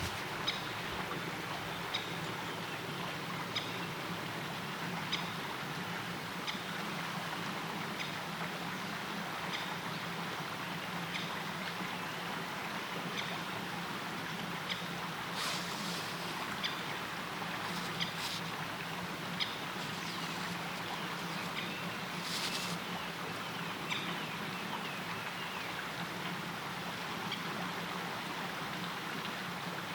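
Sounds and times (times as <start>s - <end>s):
river water rushing: 13.5s - 23.9s.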